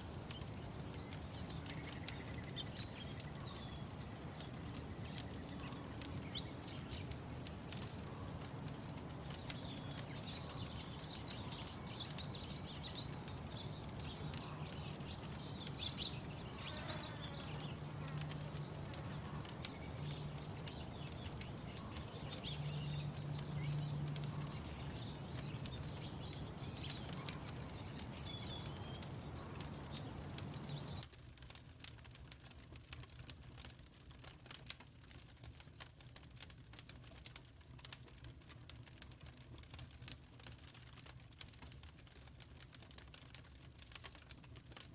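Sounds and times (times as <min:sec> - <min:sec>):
birds chirping: 0:00.0 - 0:31.0
wood fire crackling: 0:00.0 - 0:44.9.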